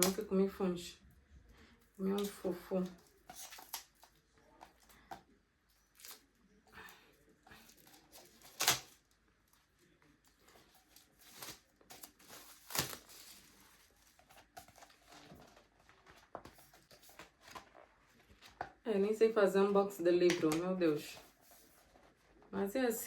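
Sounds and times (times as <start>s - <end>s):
plastic wrap ripping: 7.6s - 9.2s, 10.9s - 15.4s
plastic shrink-wrap crinkling: 10.5s - 18.4s.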